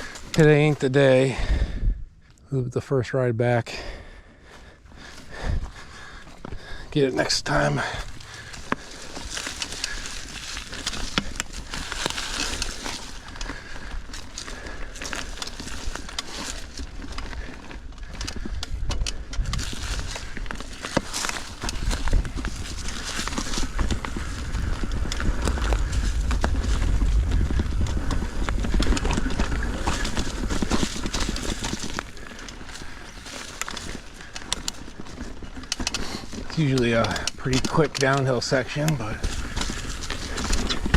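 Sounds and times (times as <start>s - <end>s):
bike tyres crunching on rock: 0.0s - 1.7s, 3.4s - 40.9s
bike rattling: 0.0s - 1.8s, 3.7s - 40.9s
low rumble on microphone: 21.6s - 32.3s.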